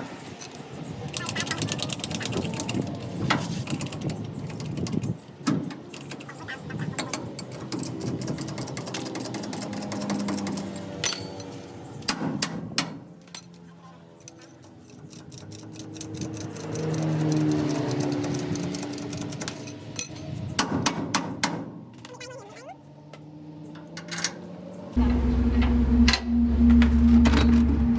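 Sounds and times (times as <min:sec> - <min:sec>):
metal tools clinking: 0:07.0 - 0:11.9, 0:13.2 - 0:20.4, 0:23.6 - 0:26.2.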